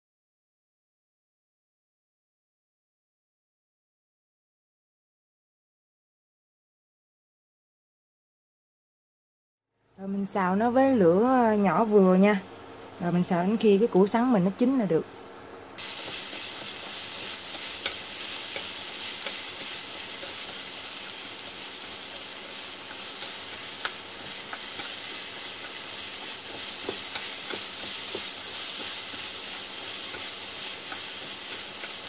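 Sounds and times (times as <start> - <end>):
spatula clicking and scraping: 15.8 - 32.0
vegetables sizzling in a frying pan: 15.8 - 32.0.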